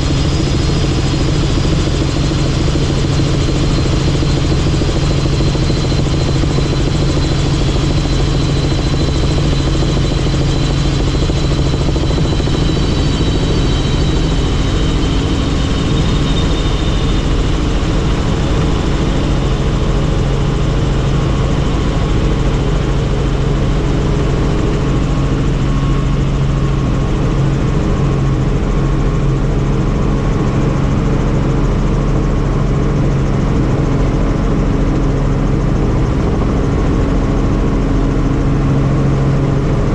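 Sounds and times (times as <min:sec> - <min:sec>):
faint high whine: 0:00.0 - 0:27.3
helicopter engine and rotor noise: 0:00.0 - 0:39.9.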